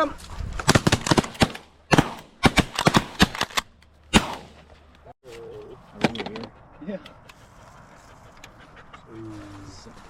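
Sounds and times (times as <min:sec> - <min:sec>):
shotguns firing: 0:00.6 - 0:04.6.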